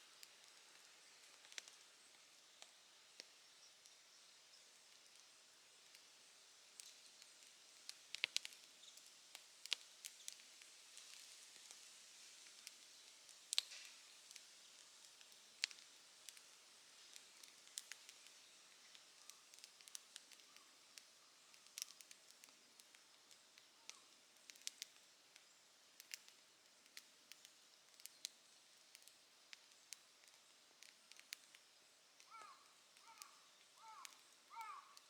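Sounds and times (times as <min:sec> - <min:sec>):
campfire crackling: 0:00.0 - 0:35.0
faint hiss of flames: 0:00.0 - 0:35.0.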